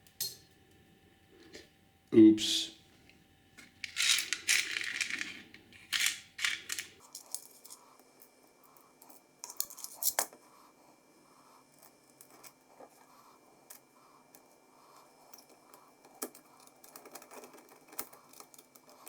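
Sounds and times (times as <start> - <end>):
scraping and rustling: 3.6 - 7.8
small parts clicking and tapping: 3.6 - 10.4, 15.3 - 19.0.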